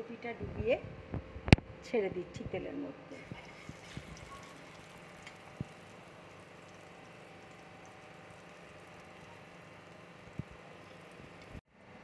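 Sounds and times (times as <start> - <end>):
food sizzling in oil: 3.2 - 11.6.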